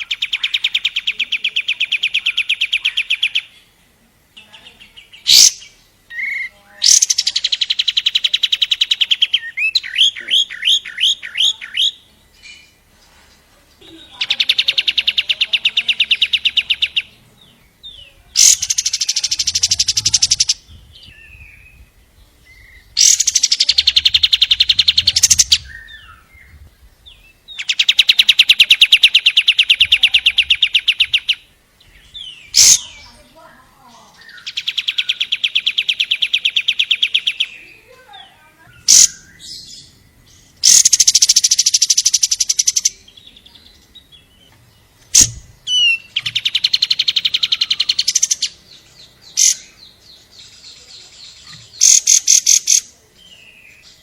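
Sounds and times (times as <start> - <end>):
bird sharp chirps: 4.4 - 12.8, 13.8 - 33.2, 34.1 - 54.0
bird rapid rattling trills: 18.4 - 20.7, 22.9 - 25.7, 40.6 - 42.9, 45.1 - 48.6, 51.3 - 52.9.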